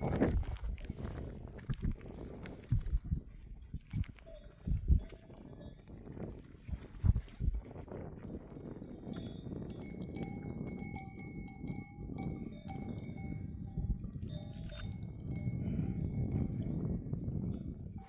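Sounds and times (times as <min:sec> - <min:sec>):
livestock bells clinking: 0:04.2 - 0:06.6, 0:08.4 - 0:18.0.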